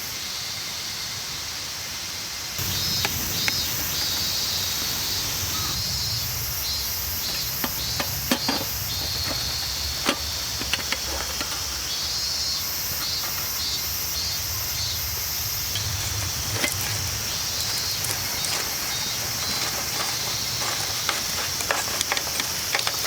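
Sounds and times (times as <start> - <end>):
insects chirring: 0.0 - 23.0
sharp clicks and knocks: 7.2 - 11.9, 15.7 - 23.0.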